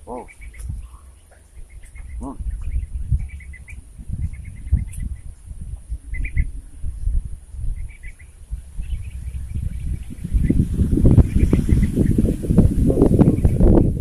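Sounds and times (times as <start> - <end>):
small birds trilling: 0.0 - 14.0.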